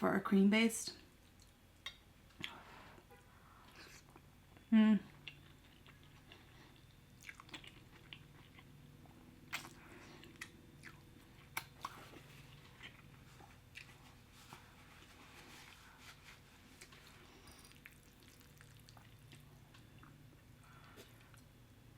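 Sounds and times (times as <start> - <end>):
wet chewing and mouth smacks: 1.2 - 2.6, 3.6 - 14.2, 16.8 - 21.6.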